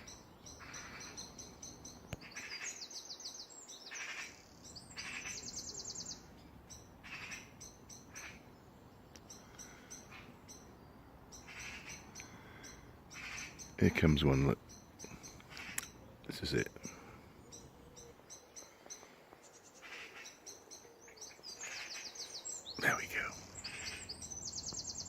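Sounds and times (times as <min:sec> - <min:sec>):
garden birds singing and chirping: 0:00.0 - 0:25.0
fast high bird trills: 0:21.2 - 0:25.0.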